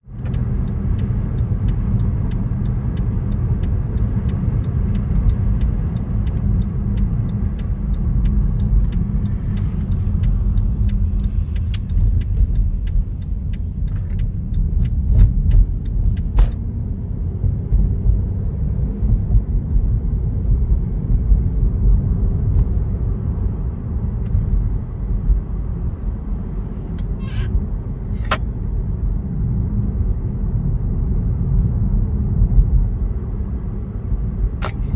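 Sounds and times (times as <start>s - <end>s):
car road and engine rumble: 0.0s - 34.9s
light regular ticking: 0.1s - 16.6s.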